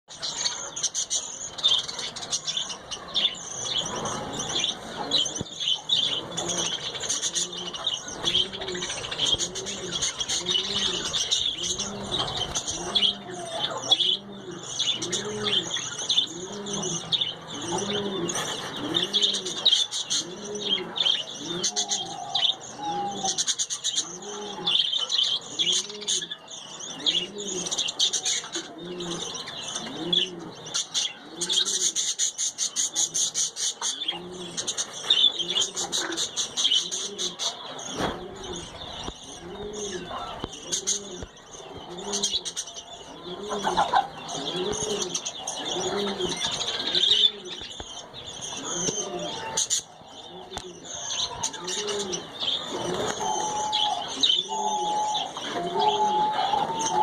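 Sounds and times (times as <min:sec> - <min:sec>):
low cooing call: 0:06.0 - 0:19.6, 0:20.2 - 0:24.9, 0:50.2 - 0:57.0
budgerigars chattering: 0:27.0 - 0:57.0.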